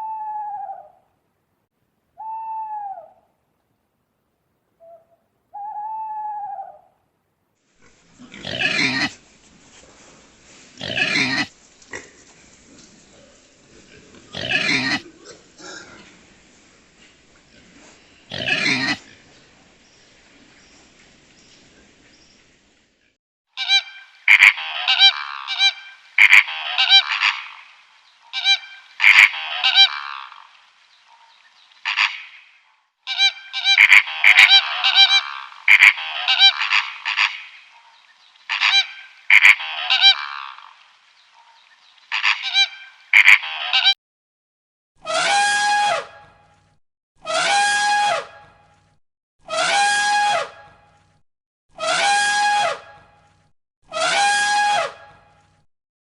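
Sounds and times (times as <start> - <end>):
drawn-out steady-pitched call: 2.2 - 3.3, 4.8 - 6.9, 23.5 - 43.9, 53.9 - 55.3
geese honking: 23.6 - 30.5, 31.8 - 32.4, 33.1 - 37.6, 38.5 - 40.6, 42.1 - 44.0.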